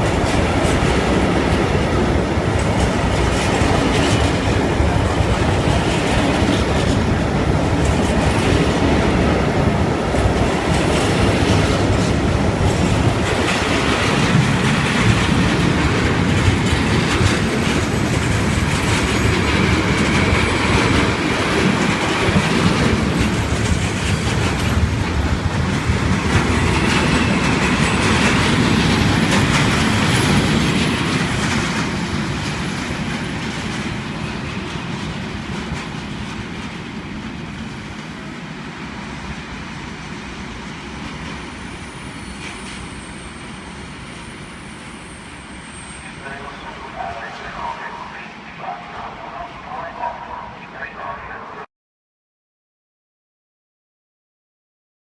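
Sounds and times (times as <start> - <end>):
train wheels clattering: 0.0 - 38.3.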